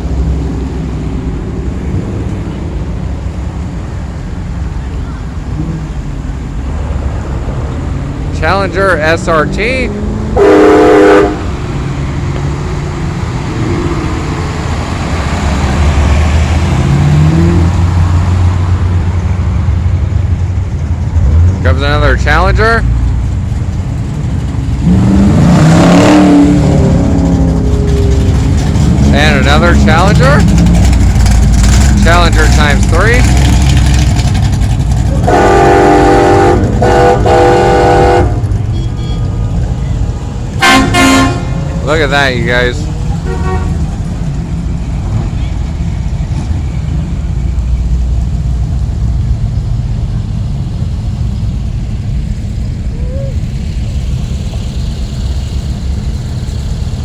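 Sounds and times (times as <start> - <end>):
car engine rumbling past: 0.0 - 57.0
multi-tone vehicle horn blasts: 10.4 - 11.5, 35.2 - 39.4, 40.6 - 41.6, 43.2 - 43.9.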